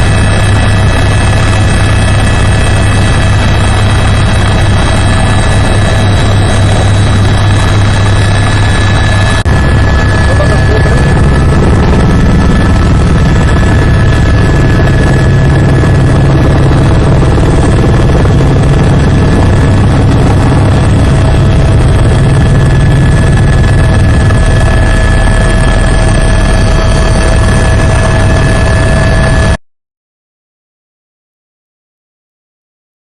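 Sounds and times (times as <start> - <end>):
helicopter rotor rumble: 0.0 - 29.6
turbine whine: 0.0 - 29.6.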